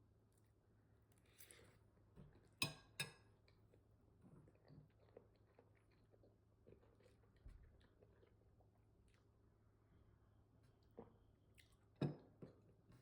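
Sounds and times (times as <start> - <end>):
faint chewing: 4.4 - 9.4.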